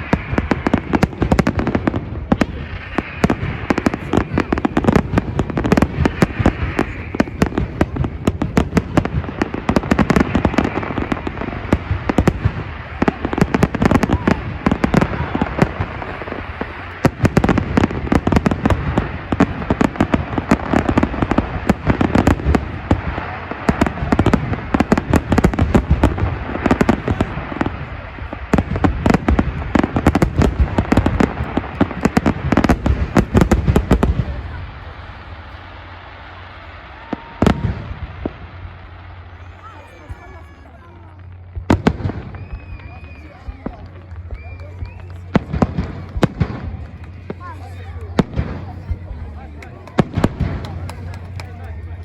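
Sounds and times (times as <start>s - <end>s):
fireworks bangs and crackling: 0.0s - 52.0s.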